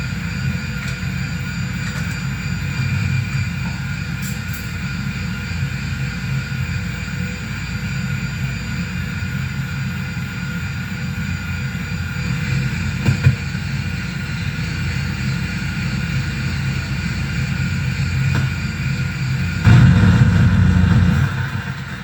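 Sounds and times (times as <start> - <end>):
low rumbling drone: 2.5 - 5.2, 19.4 - 22.0
loud crackle: 19.6 - 22.0
sustained feedback tones: 19.6 - 22.0.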